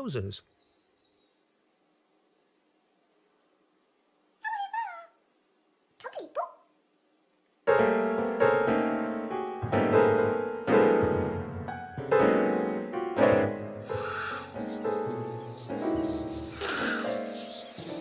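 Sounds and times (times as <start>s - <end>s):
slow sad piano tune: 7.7s - 18.0s.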